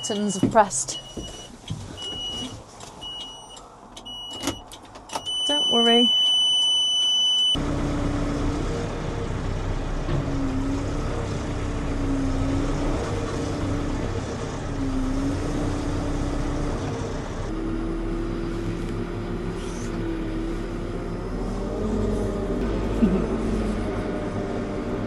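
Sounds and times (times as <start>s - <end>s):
diesel engine running: 7.6s - 25.0s.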